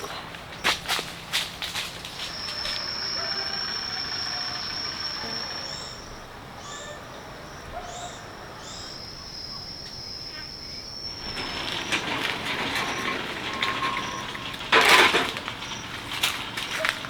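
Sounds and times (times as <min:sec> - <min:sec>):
rustling and clattering: 0:11.1 - 0:17.0.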